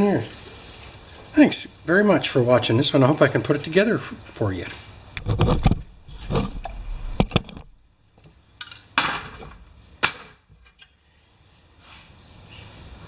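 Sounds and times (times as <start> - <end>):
hard objects knocking: 5.2 - 7.8.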